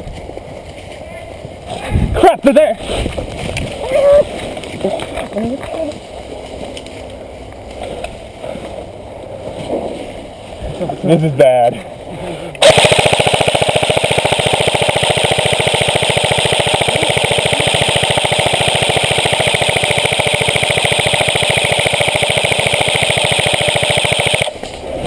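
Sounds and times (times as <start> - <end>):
airsoft gun full-auto burst: 12.6 - 24.6.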